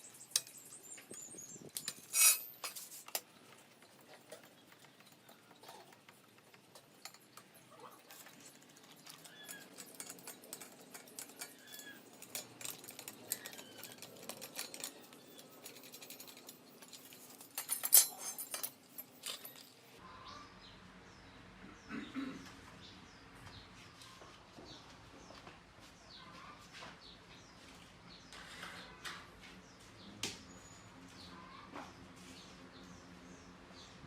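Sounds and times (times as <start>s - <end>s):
small hard objects clicking: 3.0s - 17.7s.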